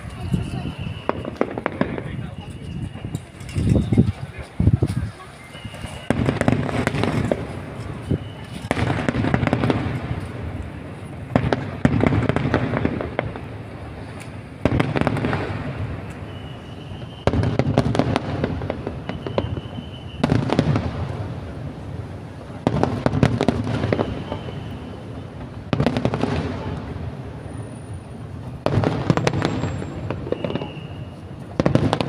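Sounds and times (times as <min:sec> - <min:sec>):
fireworks bangs: 0:00.0 - 0:32.0
fireworks crackling: 0:00.0 - 0:32.0
faint whistles: 0:00.4 - 0:01.4, 0:02.0 - 0:04.3, 0:05.2 - 0:06.4, 0:08.0 - 0:08.7, 0:16.1 - 0:17.6, 0:19.0 - 0:20.4, 0:23.9 - 0:25.3, 0:29.4 - 0:31.4.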